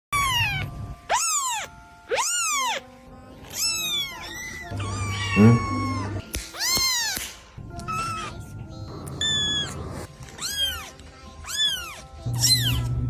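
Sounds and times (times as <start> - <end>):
kitten meowing: 0.2 - 2.8, 3.5 - 7.2, 9.2 - 9.8, 10.4 - 13.0.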